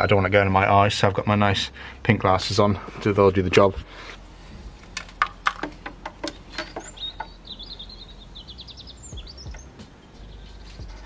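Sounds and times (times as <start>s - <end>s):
small bird chirping and trilling: 6.3s - 11.0s.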